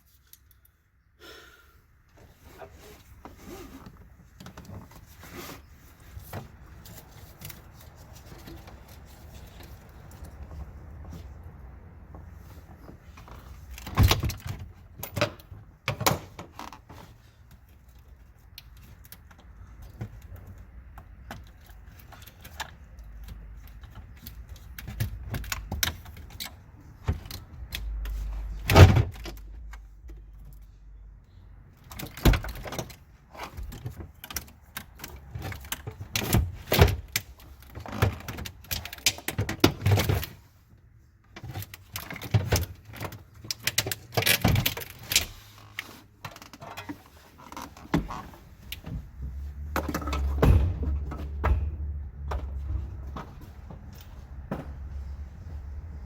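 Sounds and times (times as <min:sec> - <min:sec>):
metallic clinks and rattles of tools: 0:00.0 - 0:00.8.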